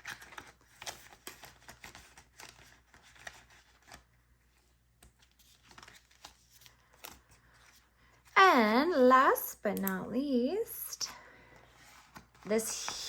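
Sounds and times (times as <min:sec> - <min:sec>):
paper bills rustling: 0:00.0 - 0:07.9, 0:11.4 - 0:13.0.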